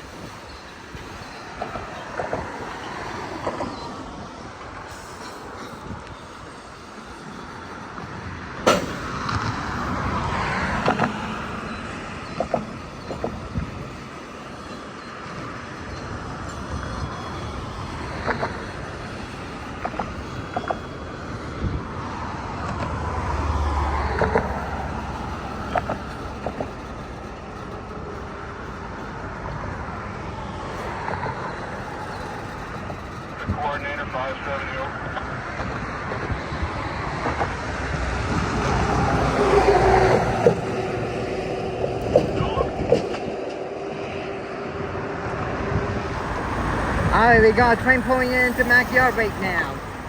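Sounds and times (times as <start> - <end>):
rail yard rumble: 0.0 - 50.0
metallic knocks and clanks: 8.6 - 11.3.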